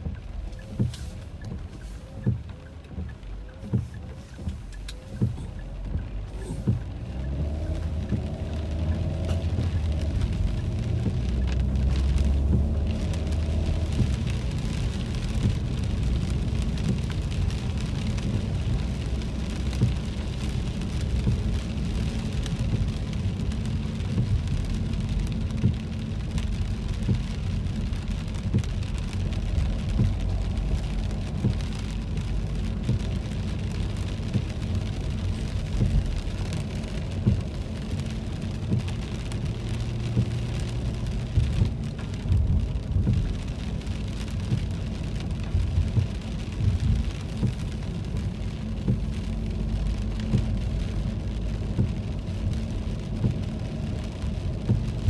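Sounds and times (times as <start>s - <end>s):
rain drops on car windshield: 0.0s - 55.0s
road and engine rumble: 0.0s - 55.0s.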